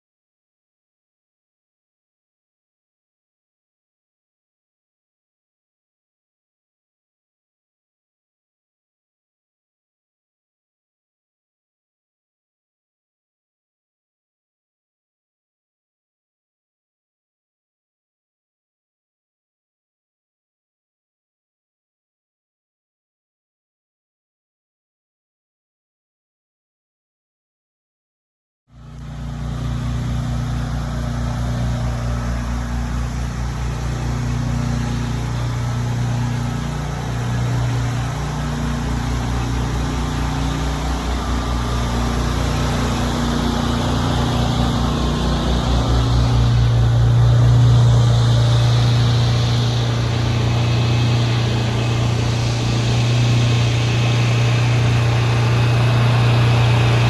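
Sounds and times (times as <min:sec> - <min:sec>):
pressure washer engine running: 0:28.8 - 0:57.0.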